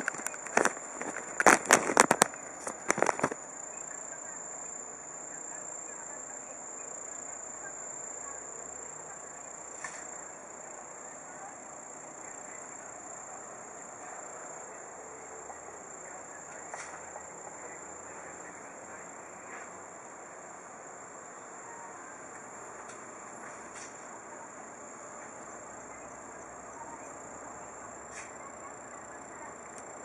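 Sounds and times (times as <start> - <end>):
background noise: 0.0 - 30.0
insects trilling: 0.0 - 30.0.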